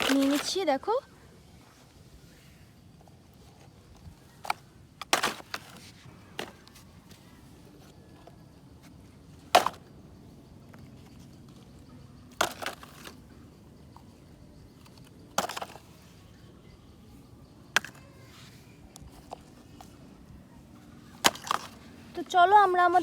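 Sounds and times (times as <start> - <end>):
toy vehicles clattering into basket: 0.0 - 0.7, 3.4 - 7.4, 9.4 - 9.9, 10.7 - 13.4, 14.8 - 16.4, 17.7 - 20.0, 21.0 - 23.0
faint outdoor background: 0.0 - 23.0.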